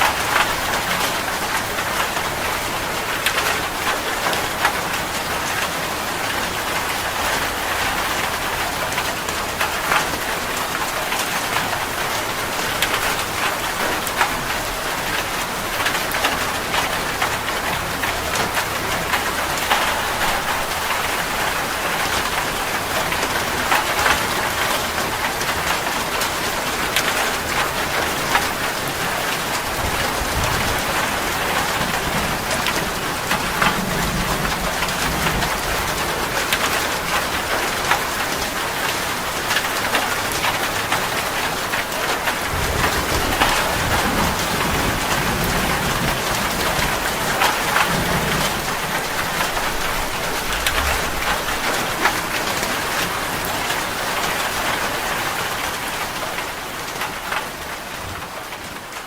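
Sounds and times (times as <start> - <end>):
heavy rain on tree branch: 0.0 - 59.0
distant thunder rumbles: 27.3 - 37.9, 42.2 - 53.1.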